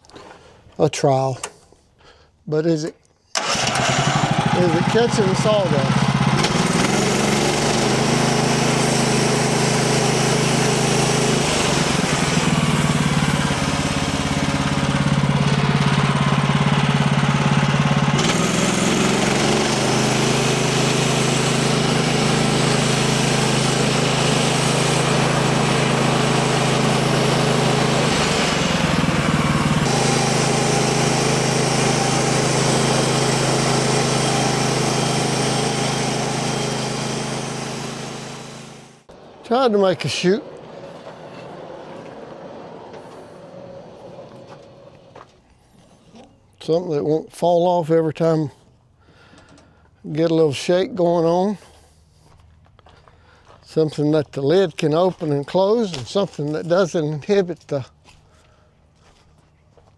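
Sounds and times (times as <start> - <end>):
sawmill engine running: 3.3 - 46.3, 53.3 - 59.9
saw blade cutting board: 18.2 - 28.8, 29.8 - 38.9.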